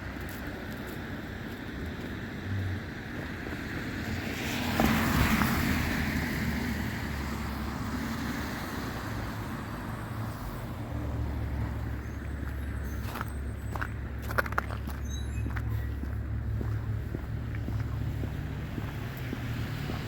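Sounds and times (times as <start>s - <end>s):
vehicle passing by: 15.5s - 20.0s.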